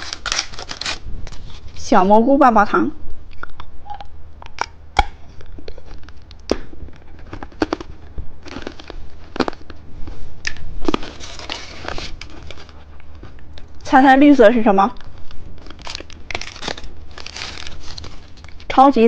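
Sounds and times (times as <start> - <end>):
wrapper torn open: 0.0 - 1.8, 10.5 - 12.8, 15.0 - 18.7
wrapper rustling: 0.0 - 2.0, 10.8 - 13.8, 15.0 - 18.8.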